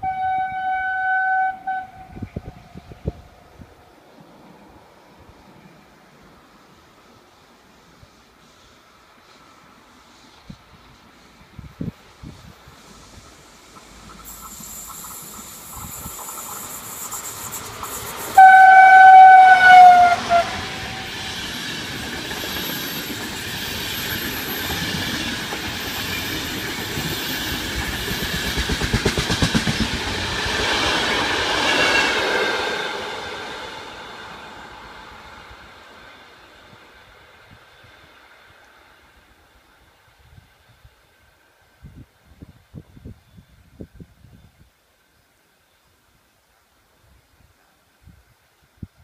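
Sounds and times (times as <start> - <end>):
train horn blast: 0.0 - 3.2, 18.3 - 21.2
train coaches rumbling: 8.9 - 39.6.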